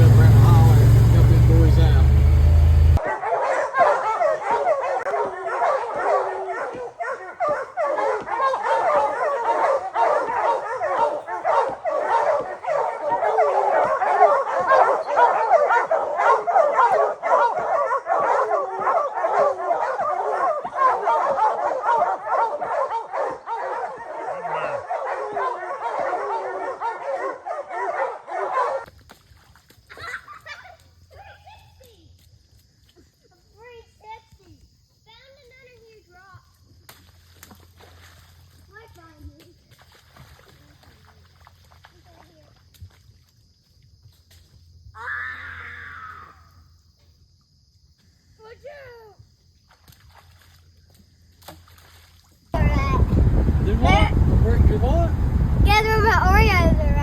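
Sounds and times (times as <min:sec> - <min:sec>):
hounds barking together: 0:02.8 - 0:28.9.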